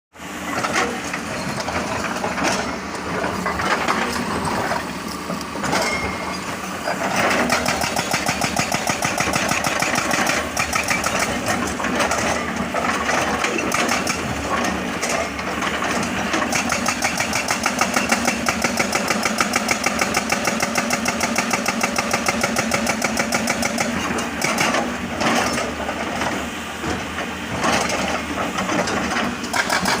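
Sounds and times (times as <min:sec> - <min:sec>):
jackhammer hammering: 0:07.2 - 0:11.6, 0:16.5 - 0:24.9, 0:29.5 - 0:30.0.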